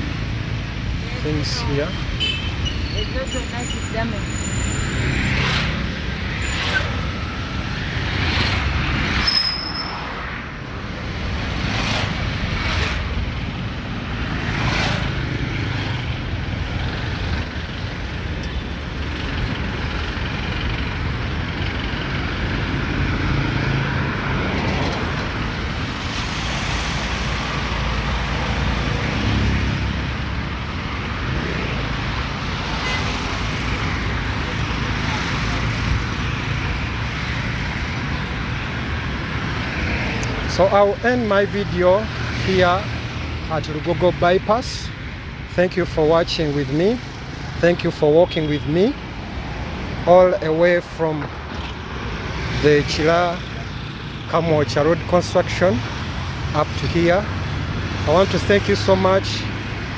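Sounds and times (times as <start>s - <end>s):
road traffic rumble: 0.0s - 59.9s
short high squeals: 9.2s - 10.1s.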